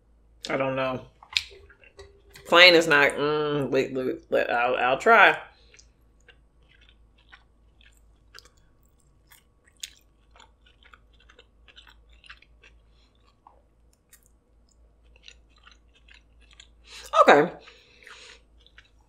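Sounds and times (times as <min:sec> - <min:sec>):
person chewing food: 0:01.2 - 0:02.5, 0:05.4 - 0:19.0.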